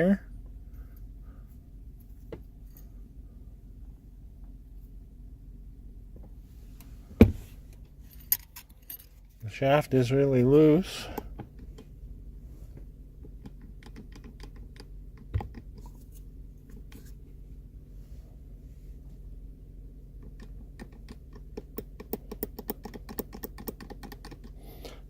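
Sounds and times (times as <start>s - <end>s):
steady low hum: 0.0s - 25.0s
dull knock: 7.2s - 7.5s
metal shaft clicking and rattling: 20.2s - 24.6s.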